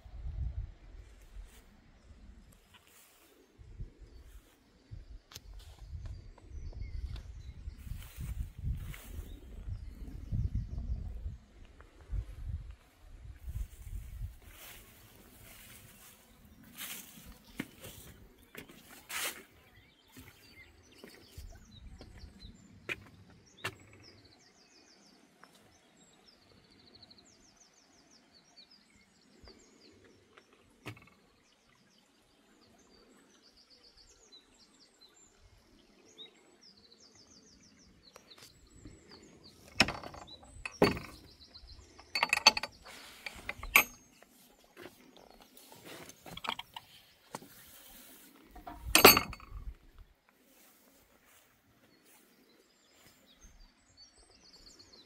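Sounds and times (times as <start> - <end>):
small birds trilling: 5.6 - 11.3, 13.5 - 32.0, 32.8 - 55.0
clicks and knocks: 39.6 - 41.3, 42.0 - 44.2, 48.6 - 49.6
loud knocks and clattering: 39.7 - 41.2.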